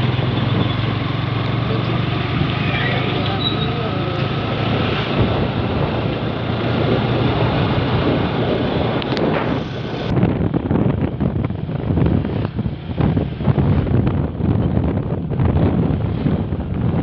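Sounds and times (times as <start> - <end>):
low engine hum: 0.0 - 17.0
wind buffeting microphone: 0.0 - 17.0.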